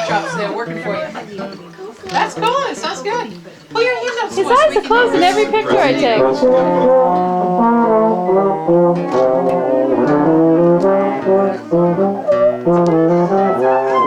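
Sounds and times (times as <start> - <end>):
brass instrument melody: 5.2 - 14.0.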